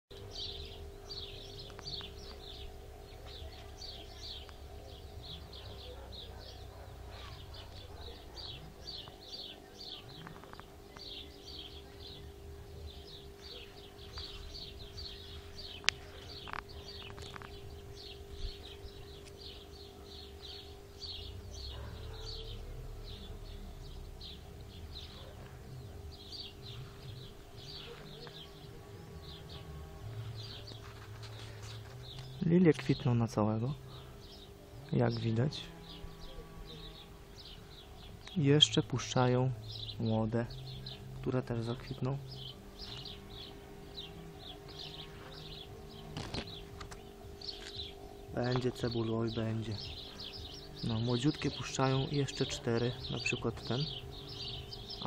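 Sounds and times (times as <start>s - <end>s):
low hum: 0.1s - 55.0s
small birds chirping: 0.1s - 55.0s.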